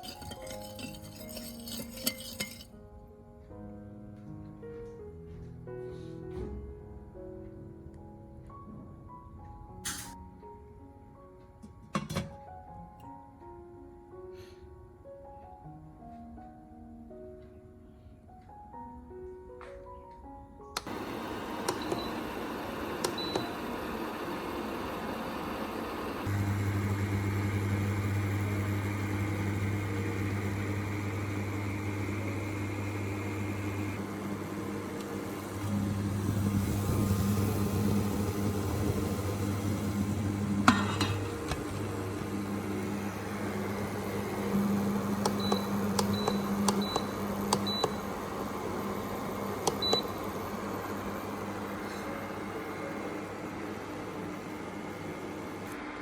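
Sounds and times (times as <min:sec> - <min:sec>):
kitchen appliance humming: 0:00.0 - 0:02.7, 0:20.8 - 0:56.0.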